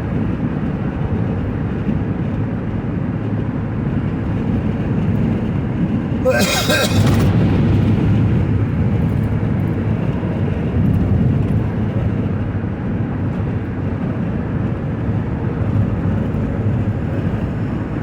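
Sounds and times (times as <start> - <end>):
tyres hissing on wet road: 6.3 - 7.3.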